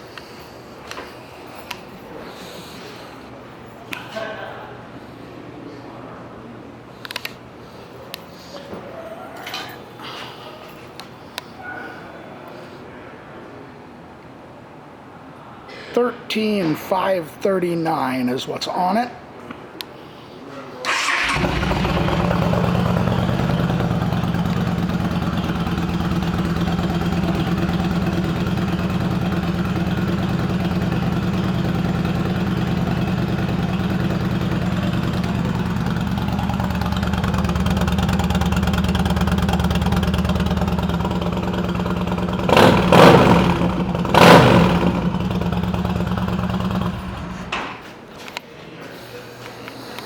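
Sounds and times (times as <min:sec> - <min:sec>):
engine revving: 0:20.9 - 0:47.5
motorcycle engine idling: 0:20.9 - 0:47.6.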